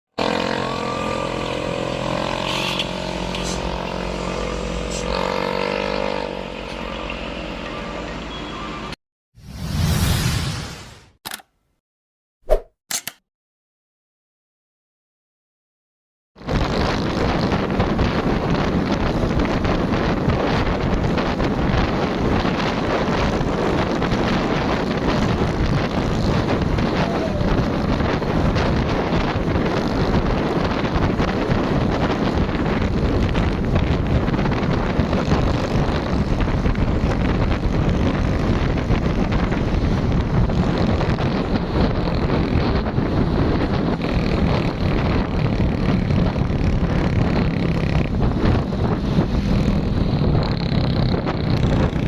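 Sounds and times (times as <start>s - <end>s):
road traffic noise: 0.2s - 9.0s, 16.4s - 52.0s
wind on microphone: 16.4s - 52.0s.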